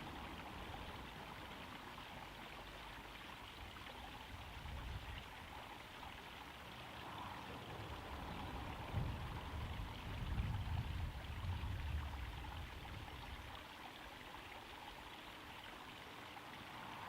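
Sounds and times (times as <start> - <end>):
pond waterfall splashing: 0.0 - 17.0.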